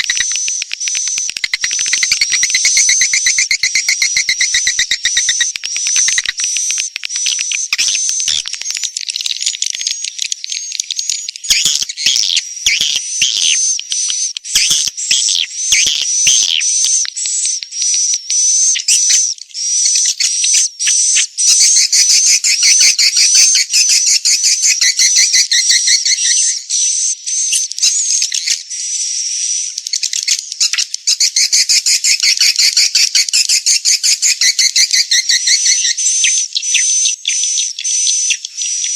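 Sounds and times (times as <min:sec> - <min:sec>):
swiftlets twittering: 0:00.0 - 0:17.0.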